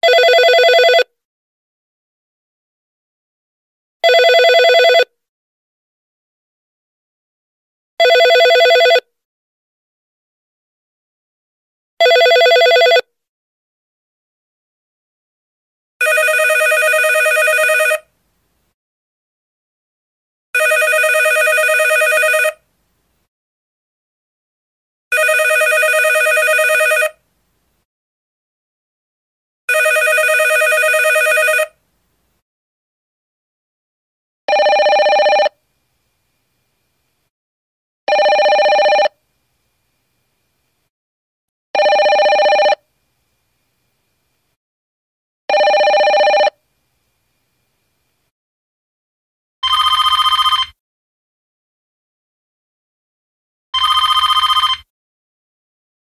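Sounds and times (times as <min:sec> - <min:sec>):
telephone bell ringing: 0:00.0 - 0:01.1, 0:04.0 - 0:05.1, 0:08.0 - 0:09.1, 0:12.0 - 0:13.1, 0:16.0 - 0:18.0, 0:20.6 - 0:22.6, 0:25.1 - 0:27.2, 0:29.7 - 0:31.8, 0:34.5 - 0:35.6, 0:38.1 - 0:39.2, 0:41.8 - 0:42.8, 0:45.5 - 0:46.6, 0:49.6 - 0:50.8, 0:53.8 - 0:54.9.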